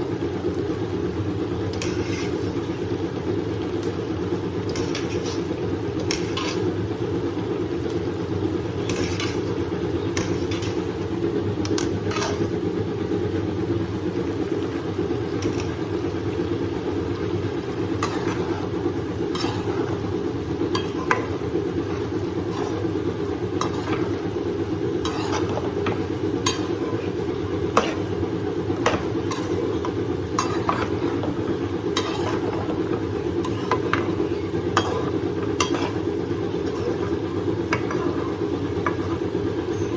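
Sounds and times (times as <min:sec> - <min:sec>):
steady low hum: 0:00.0 - 0:39.9
spoon scraping a pan: 0:01.7 - 0:02.8, 0:04.6 - 0:06.8, 0:08.7 - 0:12.6, 0:15.3 - 0:39.9.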